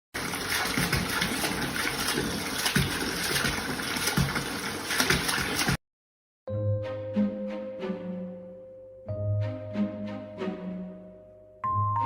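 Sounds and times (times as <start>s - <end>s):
running water rushing: 0.2s - 5.8s.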